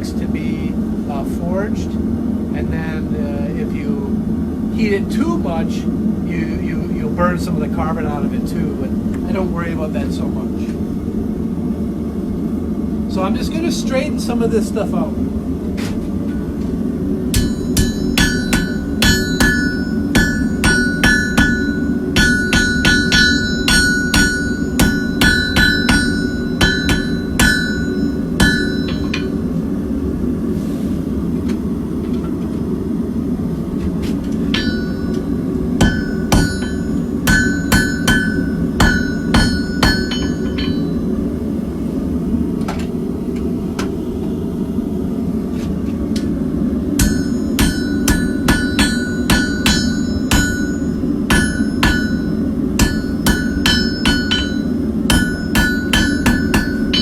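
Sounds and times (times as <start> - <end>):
hammer ringing on anvil: 17.3 - 29.4, 34.5 - 41.1, 47.0 - 57.0.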